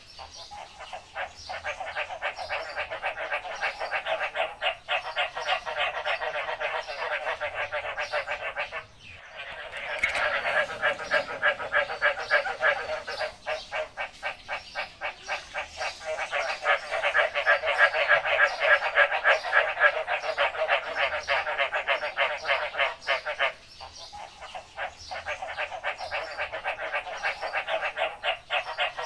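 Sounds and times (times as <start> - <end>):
frogs croaking chorus: 0.0 - 29.0.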